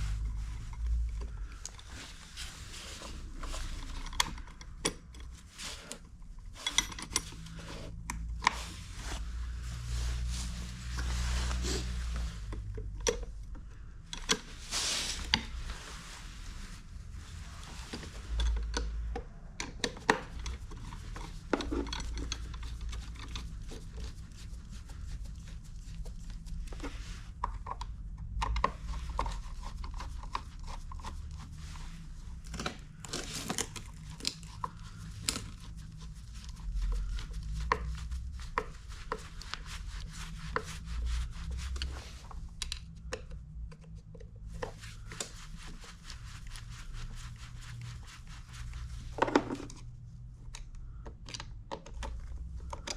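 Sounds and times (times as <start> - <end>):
tools and parts clicking and knocking: 3.4 - 5.5, 6.4 - 8.6, 12.5 - 14.6, 17.9 - 23.5.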